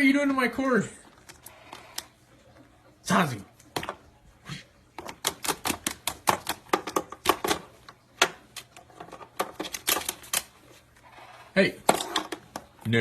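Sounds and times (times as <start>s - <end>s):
parrot chewing a cord: 1.0s - 2.8s.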